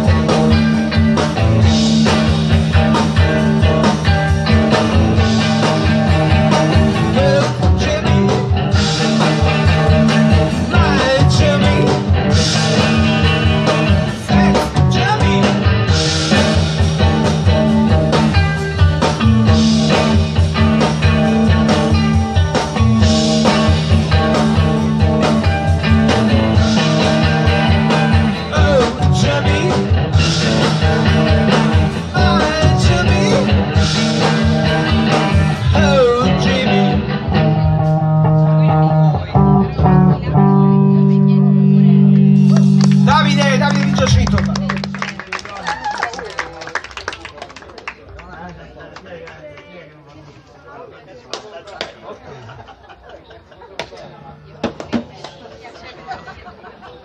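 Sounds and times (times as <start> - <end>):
steady drum beat: 0.0 - 38.6, 41.9 - 46.0
electric guitar: 0.0 - 46.4
live rock band: 0.0 - 47.7.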